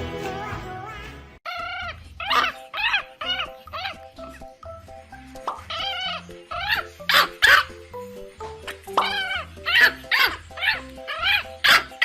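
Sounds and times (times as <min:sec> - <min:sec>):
background music: 0:00.0 - 0:12.0
pet animal crying loudly: 0:01.5 - 0:04.4, 0:05.5 - 0:07.8, 0:08.6 - 0:12.0.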